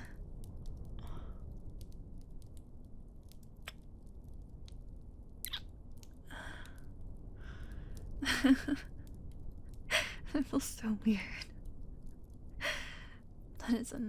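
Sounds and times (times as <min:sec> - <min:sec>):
low background rumble: 0:00.0 - 0:14.0
breathing: 0:01.0 - 0:01.5, 0:06.3 - 0:08.0, 0:12.6 - 0:13.2
wet kissing smacks: 0:05.4 - 0:05.7.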